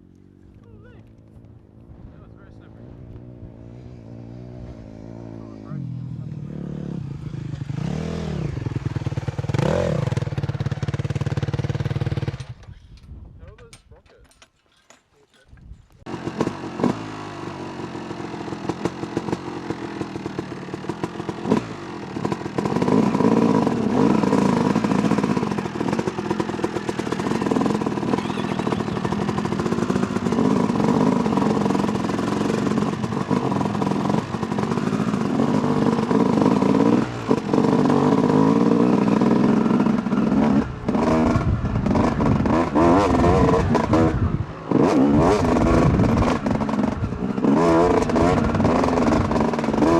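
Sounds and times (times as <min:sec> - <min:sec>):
dirt bike engine revving: 0:02.4 - 0:12.6, 0:16.1 - 0:49.9.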